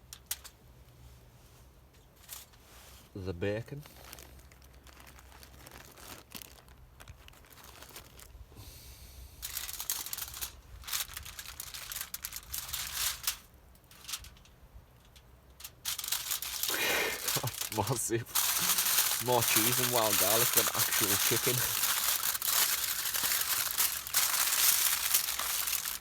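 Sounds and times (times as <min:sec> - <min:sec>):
packaging crinkling and rustling: 0:03.8 - 0:08.4, 0:09.4 - 0:14.5, 0:15.1 - 0:26.0.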